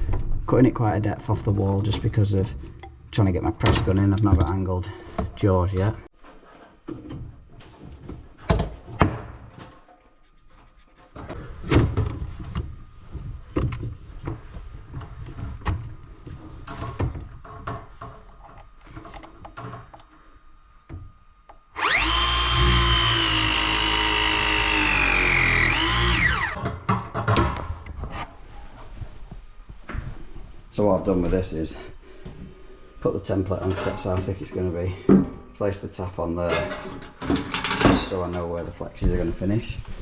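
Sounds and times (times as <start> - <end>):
press tool motor whine: 21.8 - 26.6.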